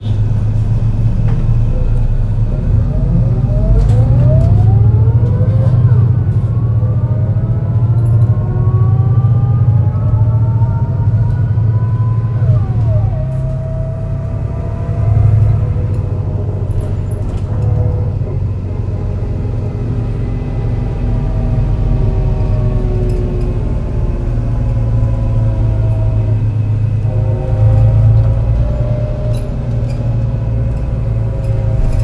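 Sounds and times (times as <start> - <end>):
bus engine rumbling with misfire: 0.0 - 32.0
gearbox whining: 0.0 - 32.0.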